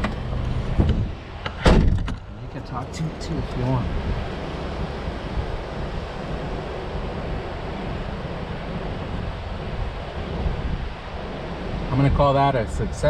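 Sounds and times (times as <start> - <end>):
wind buffeting microphone: 0.0 - 2.0.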